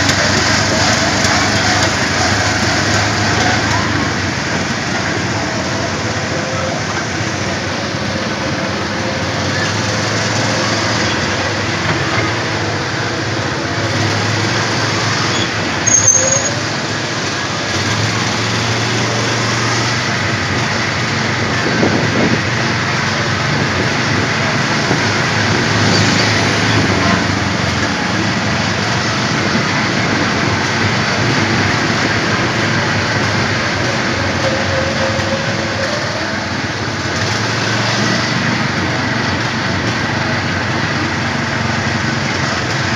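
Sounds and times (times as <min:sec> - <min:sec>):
small petrol engine running: 0:00.0 - 0:42.9
sharp high-pitched sound: 0:15.4 - 0:16.6.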